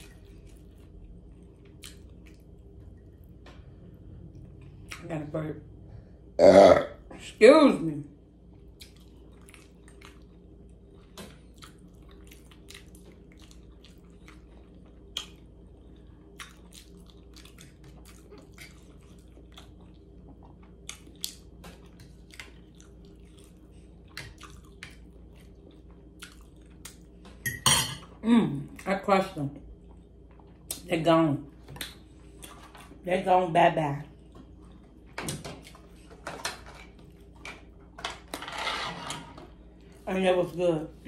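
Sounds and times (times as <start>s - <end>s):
wet chewing clicks and smacks: 0.1s - 2.7s, 8.6s - 10.5s, 11.4s - 15.6s, 16.3s - 27.2s, 31.7s - 32.6s.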